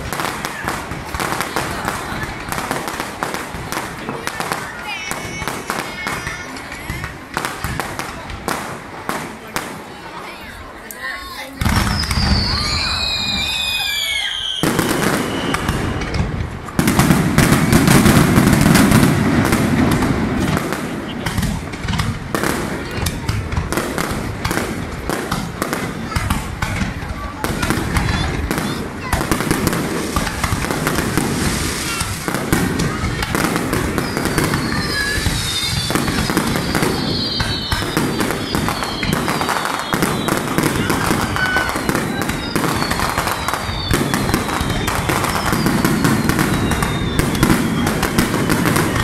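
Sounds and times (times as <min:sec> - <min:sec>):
firework crackle: 0:00.0 - 0:49.0
firework whistle falling in pitch: 0:11.8 - 0:16.1, 0:34.0 - 0:49.0.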